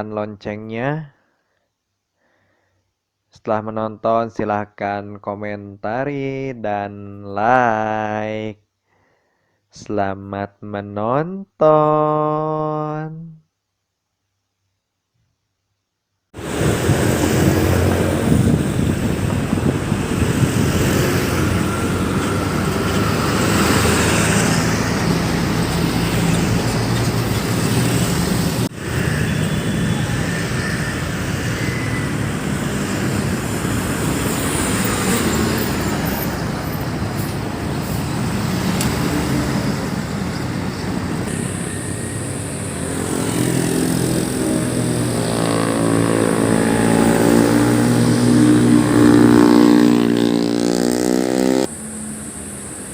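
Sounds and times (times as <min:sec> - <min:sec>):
approaching vehicle engine: 0:16.4 - 0:52.9
road traffic passing: 0:16.4 - 0:52.9.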